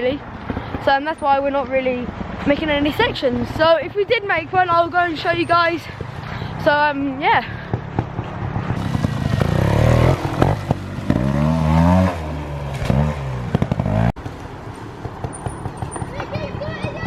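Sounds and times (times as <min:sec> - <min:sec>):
small motorcycle engine revving: 0:08.8 - 0:14.1.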